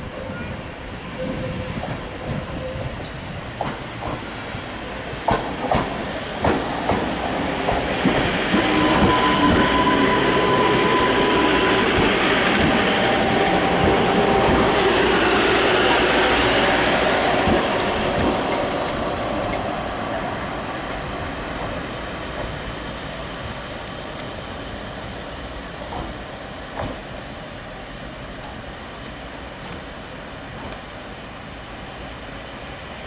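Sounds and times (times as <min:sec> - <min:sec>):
train running noise: 0:00.0 - 0:33.0
train wheels clicking over rail joints: 0:01.8 - 0:04.5, 0:05.2 - 0:09.8, 0:11.5 - 0:19.8, 0:25.8 - 0:27.1.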